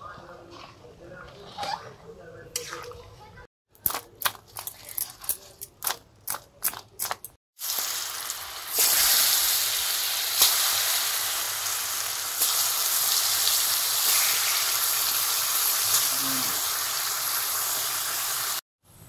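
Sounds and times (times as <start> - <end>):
potato slices sizzling in oil: 7.6 - 18.6.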